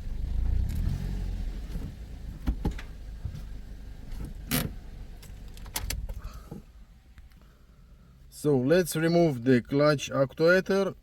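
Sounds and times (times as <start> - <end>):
car engine idling: 0.0 - 8.4.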